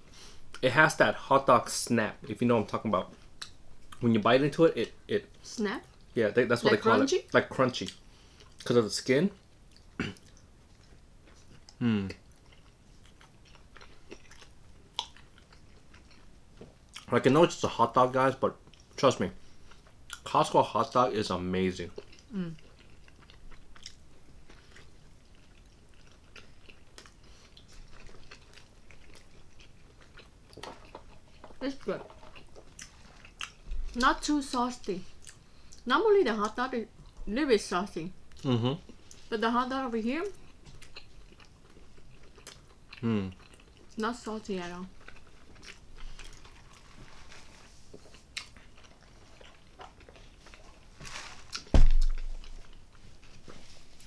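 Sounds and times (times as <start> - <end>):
quiet chewing: 7.7 - 17.2, 21.8 - 34.1, 34.8 - 37.3, 38.3 - 39.3, 40.2 - 54.0
deep sharp thump: 51.7 - 52.4.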